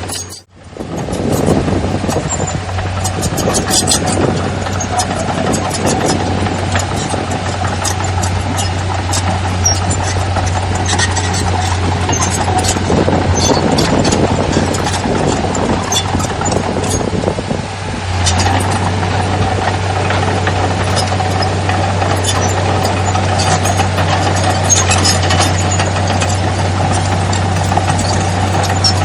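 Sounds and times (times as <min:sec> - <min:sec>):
sharp metallic clicks and clinks: 0:00.0 - 0:00.5
heavy machinery diesel engine running: 0:00.0 - 0:29.0.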